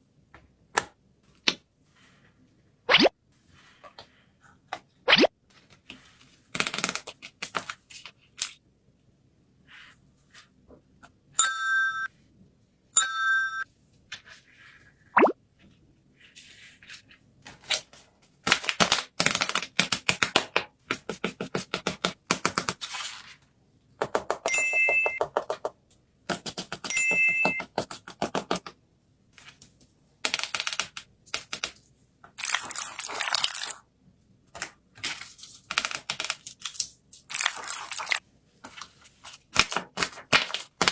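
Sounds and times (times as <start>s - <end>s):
falling plop effect: 15.2s - 15.4s
paper taps and crinkles: 34.5s - 40.9s.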